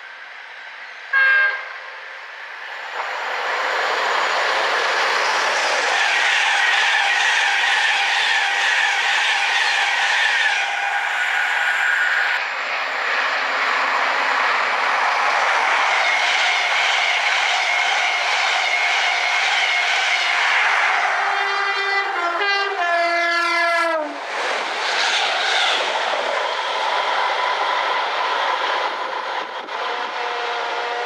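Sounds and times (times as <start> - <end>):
train wheels rushing on rails: 0.0 - 31.0.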